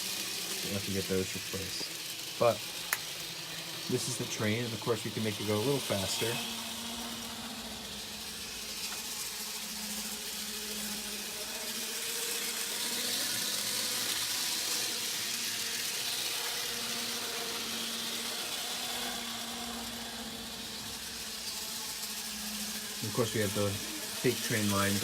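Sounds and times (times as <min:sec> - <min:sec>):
faint electric motor hum: 0:00.0 - 0:25.0
model train wheels hissing on rail: 0:00.0 - 0:25.0.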